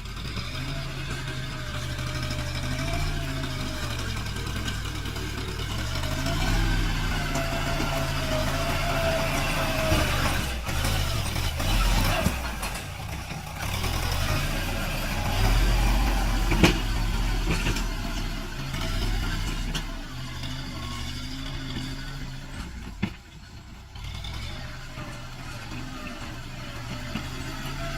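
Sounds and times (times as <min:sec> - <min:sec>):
diesel tractor engine: 0:00.0 - 0:27.9.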